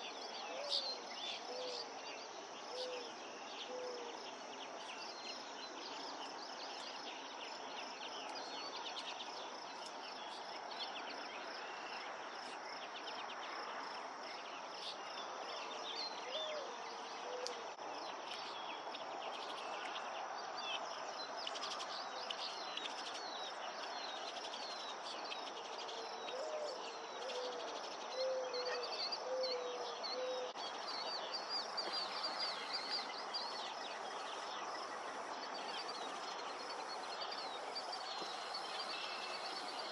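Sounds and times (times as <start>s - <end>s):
crickets chirring: 0.1s - 39.9s
bird chirps: 21.5s - 39.9s.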